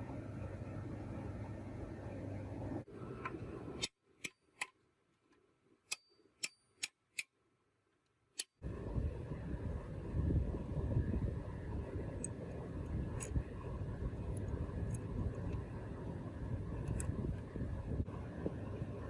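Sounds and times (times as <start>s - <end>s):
steady rumble: 0.0s - 3.8s, 8.6s - 19.0s.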